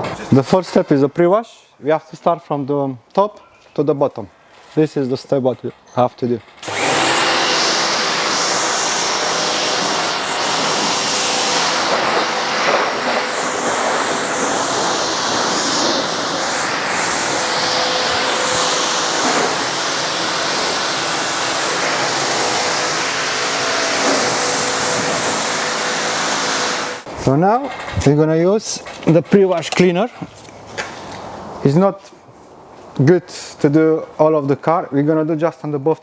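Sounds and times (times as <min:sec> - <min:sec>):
pressure washer water spray: 0:06.6 - 0:27.1
pump motor humming: 0:06.6 - 0:27.1.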